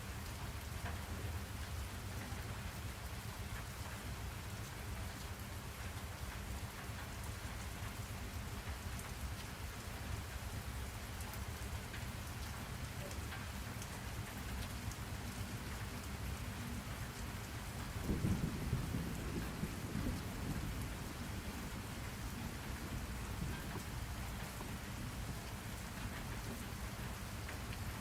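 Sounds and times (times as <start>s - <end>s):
steady rainfall: 0.0s - 28.0s
low roll of thunder: 17.7s - 27.2s.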